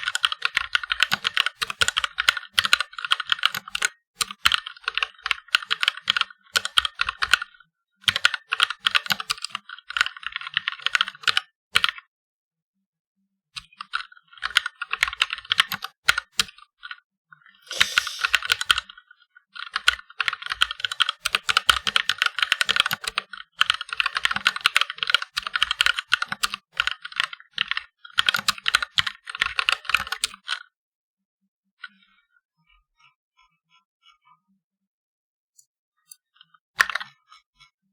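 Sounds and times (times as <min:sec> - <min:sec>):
mechanical keyboard typing: 0:00.0 - 0:07.4, 0:20.3 - 0:30.5.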